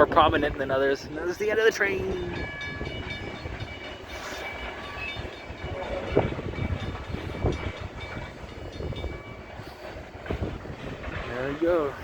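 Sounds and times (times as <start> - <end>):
freight train rolling past: 0.0 - 12.0
train wheels clunking: 0.3 - 12.0.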